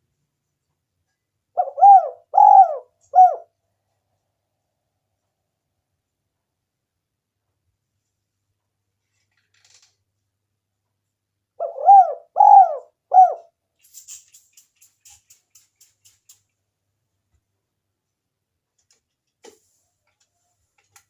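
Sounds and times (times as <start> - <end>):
dove cooing: 1.6 - 3.5, 11.6 - 13.5.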